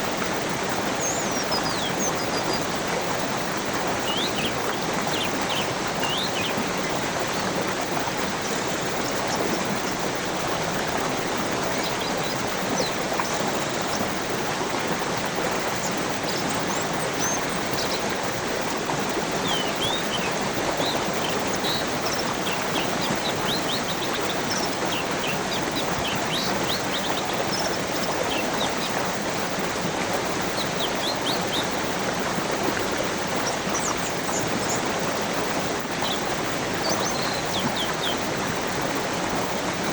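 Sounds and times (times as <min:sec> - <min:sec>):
stream rushing: 0:00.0 - 0:39.9
small birds chirping: 0:00.7 - 0:02.8, 0:03.5 - 0:10.0, 0:19.3 - 0:29.4, 0:30.4 - 0:31.8, 0:33.0 - 0:39.9.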